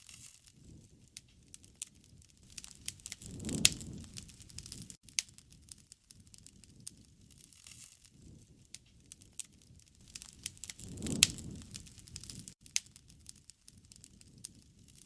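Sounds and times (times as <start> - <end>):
wood fire crackling: 0.0 - 15.0
low rumble: 10.1 - 12.5.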